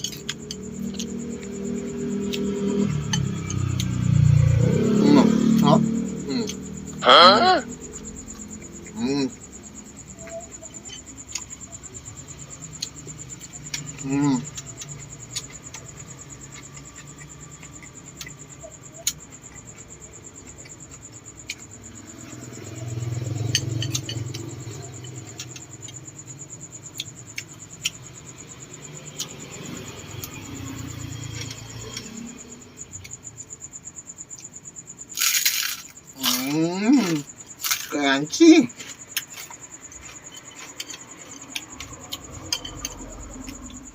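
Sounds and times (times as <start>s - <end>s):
crunchy bite: 0.0s - 9.4s, 35.1s - 37.9s
crickets trilling: 0.0s - 43.9s.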